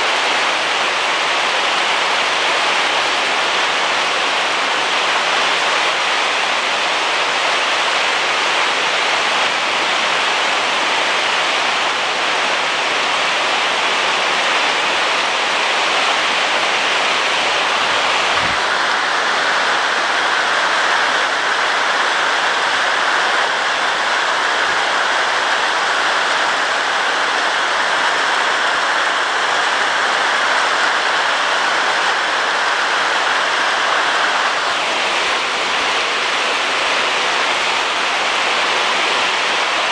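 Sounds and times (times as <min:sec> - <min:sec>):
heavy rain on a roof: 0:00.0 - 0:39.9.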